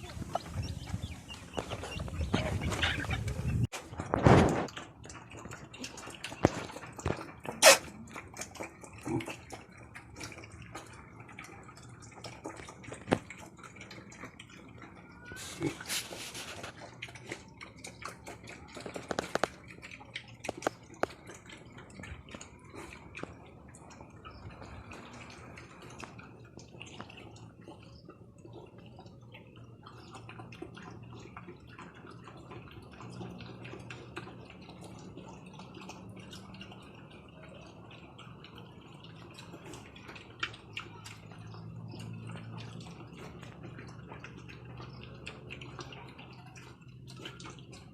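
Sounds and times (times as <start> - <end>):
water dripping and trickling: 0.0 - 47.9.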